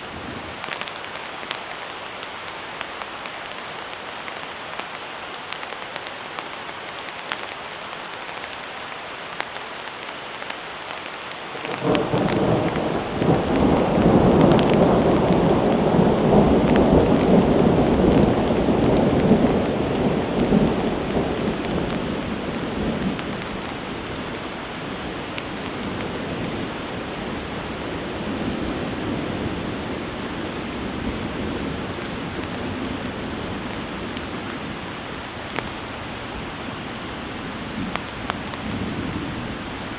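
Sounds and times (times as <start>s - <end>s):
heavy rain falling: 0.0s - 39.9s
thunder clap and rumble: 11.6s - 24.3s.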